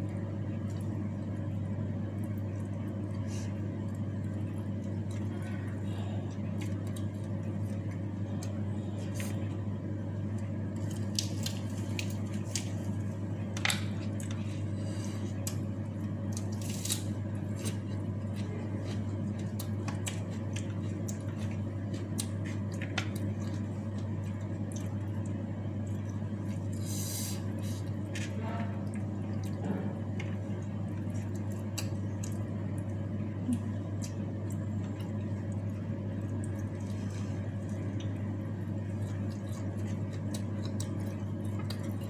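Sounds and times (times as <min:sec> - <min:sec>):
steady low hum: 0:00.0 - 0:42.0
wet chewing and lip smacks: 0:38.9 - 0:42.0.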